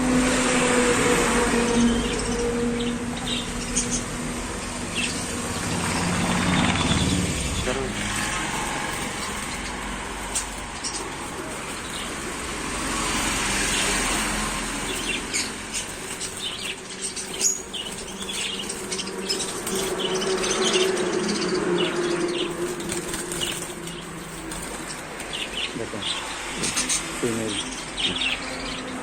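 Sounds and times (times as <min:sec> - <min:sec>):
birds chirping: 0:00.0 - 0:29.0
birds fluttering: 0:00.0 - 0:29.0.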